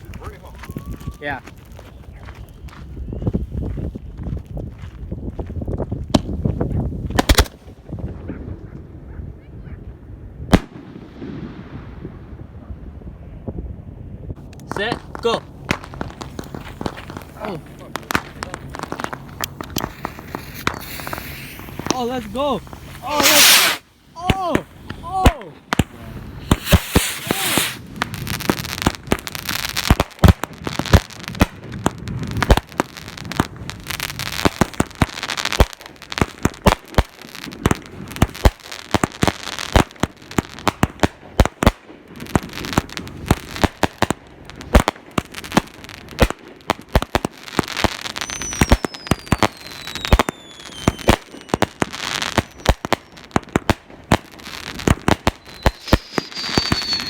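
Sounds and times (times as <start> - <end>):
fireworks bangs and crackling: 0.0 - 8.9, 10.4 - 13.4, 14.3 - 57.0
firework falling whistle: 0.6 - 1.3, 19.7 - 21.9, 22.9 - 23.8, 26.4 - 27.8, 48.2 - 51.6, 55.4 - 57.0.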